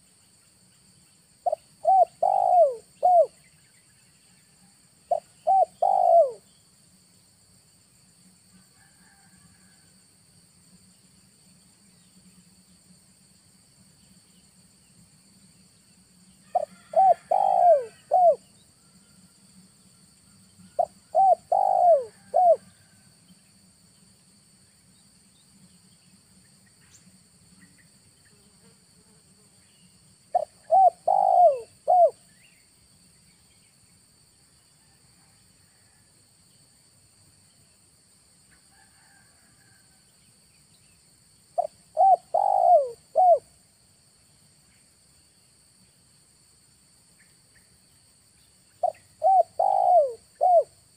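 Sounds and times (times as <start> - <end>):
high insect drone: 0.0 - 50.9
dove cooing: 1.4 - 3.4, 5.1 - 6.5, 16.5 - 18.5, 20.7 - 22.9, 30.3 - 32.2, 41.6 - 43.5, 48.8 - 50.8.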